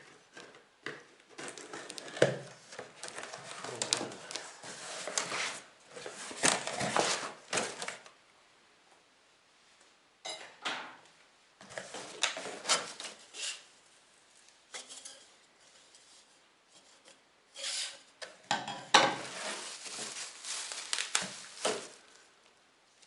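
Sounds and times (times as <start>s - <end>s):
parts and packaging clinking: 18.7s - 22.1s.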